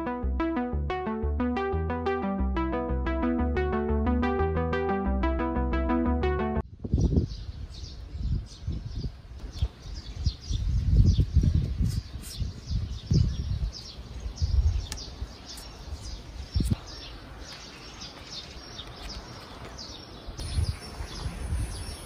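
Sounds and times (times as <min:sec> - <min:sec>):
small birds chirping: 0:06.9 - 0:22.0.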